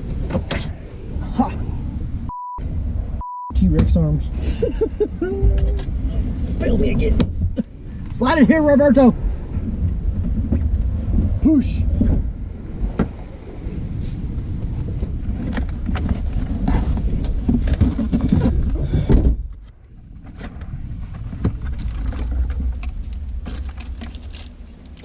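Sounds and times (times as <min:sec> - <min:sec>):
low rumble: 0:00.0 - 0:25.0
wire handling rustling and scraping: 0:19.6 - 0:25.0.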